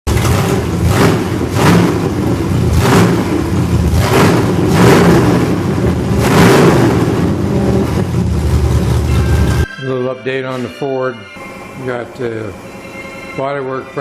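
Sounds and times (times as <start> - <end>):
car engine idling: 0.1 - 9.7
car engine revving blips: 0.1 - 9.7.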